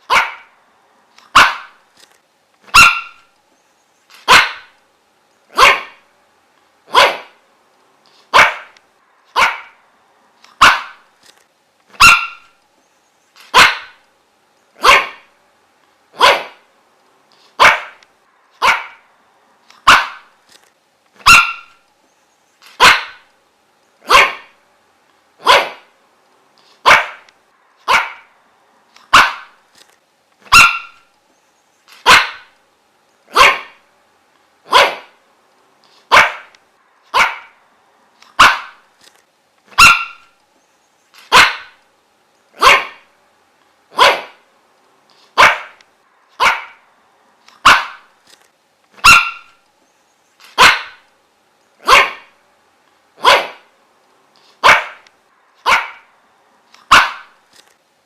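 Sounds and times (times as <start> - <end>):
dog barking: 0.0 - 0.6, 1.3 - 1.8, 2.7 - 3.3, 4.2 - 4.8, 5.5 - 6.0, 6.9 - 7.4, 8.3 - 9.8, 10.6 - 11.0, 12.0 - 12.6, 13.5 - 14.0, 14.8 - 15.3, 16.2 - 16.7, 17.6 - 18.0, 18.6 - 19.1, 19.8 - 20.3, 21.2 - 21.8, 22.8 - 23.3, 24.0 - 24.6, 25.4 - 25.9, 26.8 - 28.3, 29.1 - 29.6, 30.5 - 31.1, 32.0 - 32.5, 33.3 - 33.8, 34.6 - 35.2, 36.1 - 36.5, 37.1 - 37.6, 38.4 - 38.8, 39.8 - 40.3, 41.3 - 41.8, 42.6 - 43.1, 43.9 - 44.4, 45.4 - 45.8, 46.4 - 46.8, 47.6 - 48.1, 49.0 - 49.6, 50.6 - 51.0, 51.8 - 52.4, 53.2 - 53.7, 54.6 - 55.0, 55.6 - 56.1, 56.9 - 57.4.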